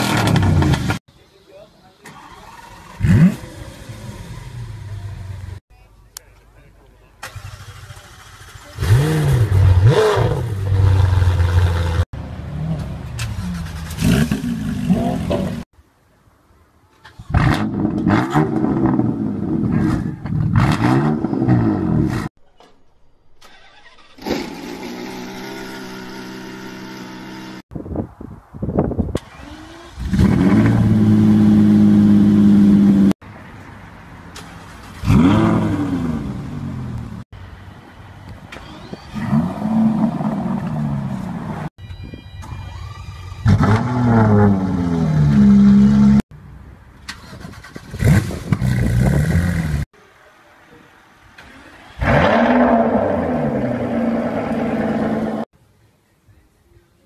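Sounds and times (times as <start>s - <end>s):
car engine revving: 34.9s - 37.2s, 52.0s - 55.5s.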